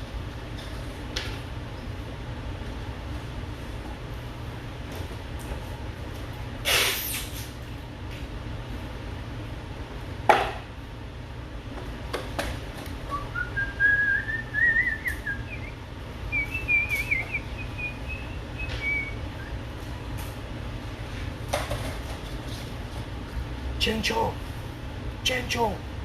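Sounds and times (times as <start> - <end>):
steady low hum: 0.0 - 26.0
person whistling a wavering tune: 13.1 - 15.7, 16.3 - 19.6.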